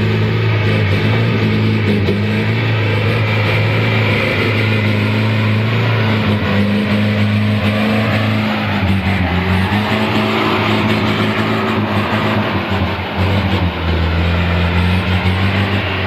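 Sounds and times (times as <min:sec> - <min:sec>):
truck engine droning: 0:00.0 - 0:16.0.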